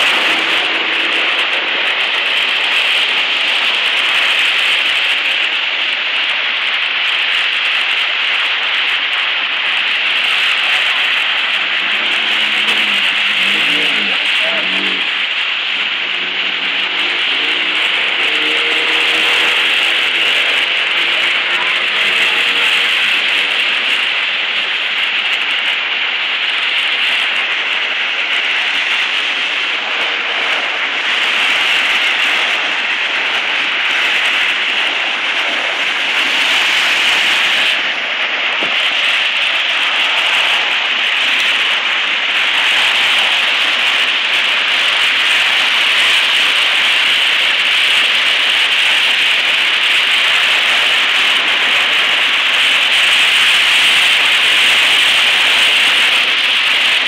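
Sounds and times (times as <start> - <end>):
traffic driving through floodwater: 0.0 - 57.0.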